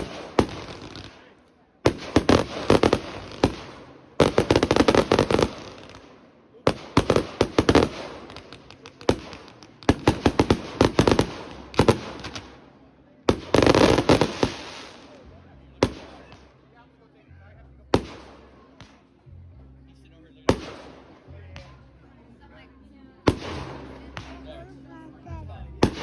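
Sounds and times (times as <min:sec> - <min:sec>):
fireworks bangs and crackles: 0:00.0 - 0:15.2, 0:15.8 - 0:16.5, 0:17.9 - 0:19.0, 0:23.3 - 0:24.5.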